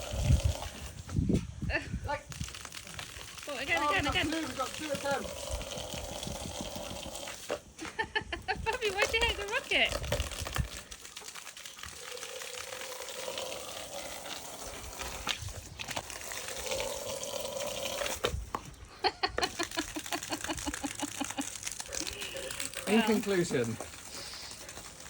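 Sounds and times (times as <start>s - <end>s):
garden hose water spraying: 0.0s - 25.0s
fast regular pulsing: 2.7s - 7.2s, 19.4s - 24.6s.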